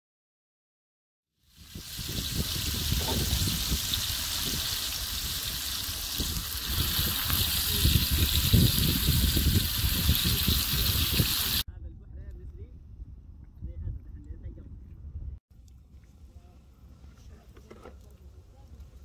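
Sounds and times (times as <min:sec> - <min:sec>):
food sizzling in oil: 0:01.4 - 0:11.6.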